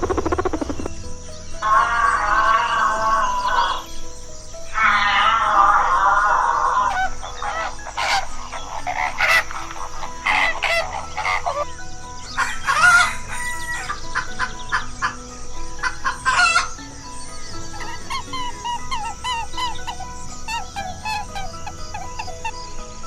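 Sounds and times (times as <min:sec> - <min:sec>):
chickens clucking: 0:00.0 - 0:01.0, 0:04.7 - 0:23.0
rooster crowing: 0:12.2 - 0:15.2.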